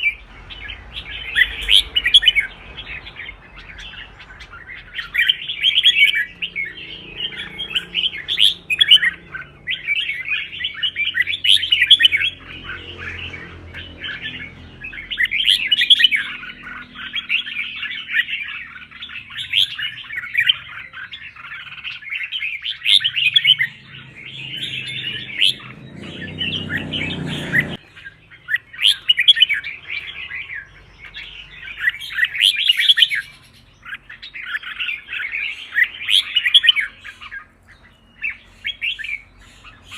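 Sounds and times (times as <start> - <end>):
bird chirping song: 0.0 - 39.9
low background rumble: 23.0 - 27.8.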